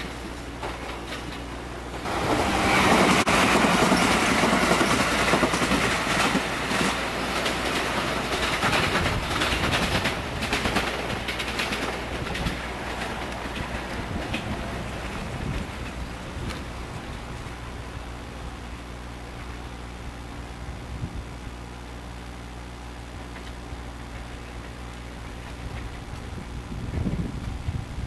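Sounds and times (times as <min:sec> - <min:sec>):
train wheels clattering on rails: 0:00.0 - 0:17.9, 0:23.3 - 0:27.6.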